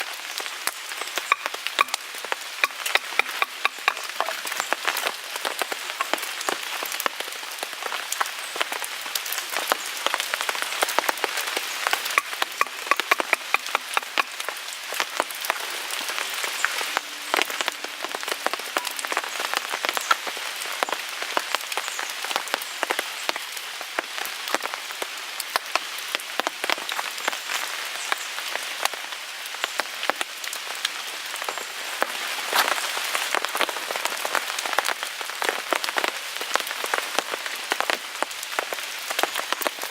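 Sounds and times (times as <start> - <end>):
rain pattering on a tarp: 0.0 - 39.9
wood fire crackling and popping: 0.3 - 23.4.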